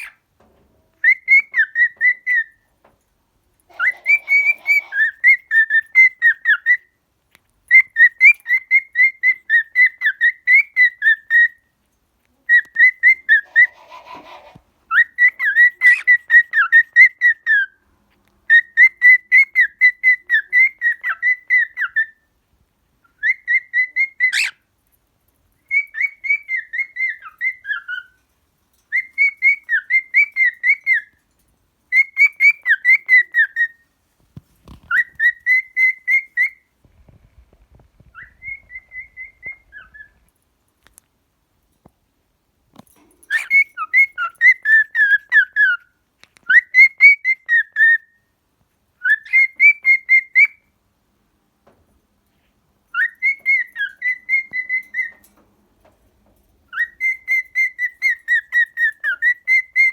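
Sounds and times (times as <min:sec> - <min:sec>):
cockatiel whistling a tune: 0:01.0 - 0:02.6, 0:03.7 - 0:07.0, 0:07.7 - 0:11.6, 0:14.9 - 0:17.8, 0:18.5 - 0:22.2, 0:23.0 - 0:24.6, 0:25.6 - 0:28.2, 0:28.9 - 0:31.1, 0:31.9 - 0:33.8, 0:34.7 - 0:36.7, 0:38.1 - 0:40.2, 0:43.3 - 0:48.2, 0:49.0 - 0:50.7, 0:52.9 - 0:55.3, 0:56.7 - 0:59.9.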